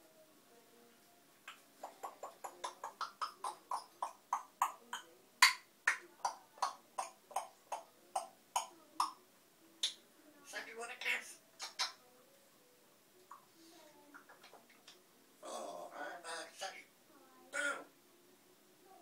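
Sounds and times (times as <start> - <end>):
parrot clicking calls: 1.5 - 9.2, 11.6 - 12.0.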